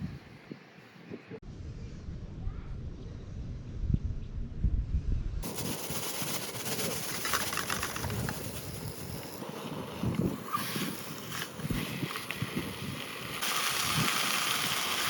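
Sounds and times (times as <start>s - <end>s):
steady hiss: 5.4s - 15.0s.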